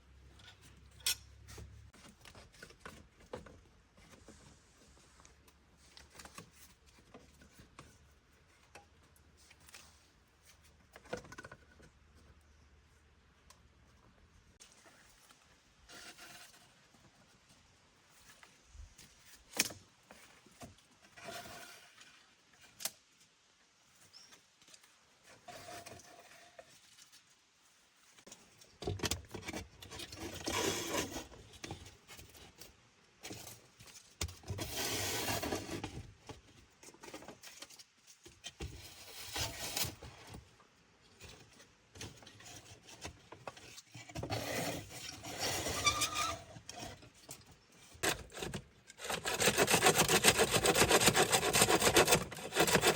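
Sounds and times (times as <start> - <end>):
wood rubbing and rasping: 48.0 - 52.9.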